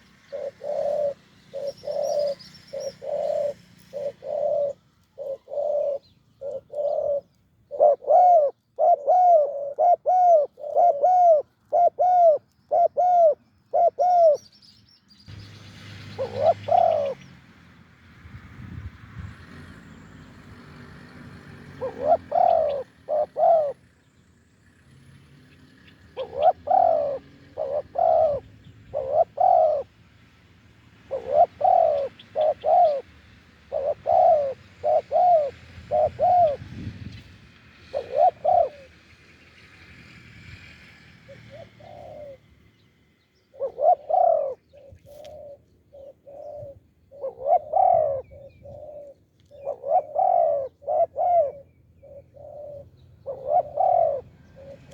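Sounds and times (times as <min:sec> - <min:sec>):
doves cooing: 0:00.0 - 0:14.4, 0:16.2 - 0:17.3, 0:20.7 - 0:23.9, 0:26.0 - 0:30.0, 0:31.0 - 0:36.9, 0:37.8 - 0:39.0, 0:41.2 - 0:42.5, 0:43.5 - 0:54.9.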